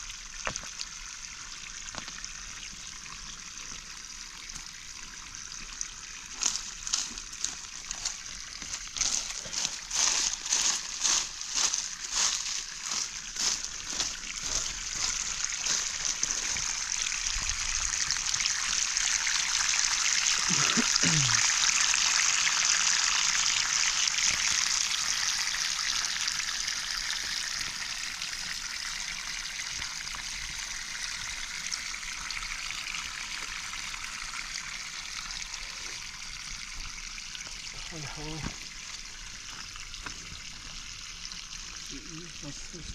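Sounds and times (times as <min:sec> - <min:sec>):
water trickling: 0:00.0 - 0:42.9.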